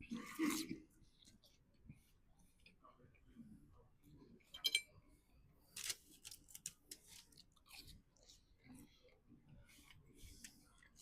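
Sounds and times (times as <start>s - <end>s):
person chewing and crunching food: 5.7s - 11.0s.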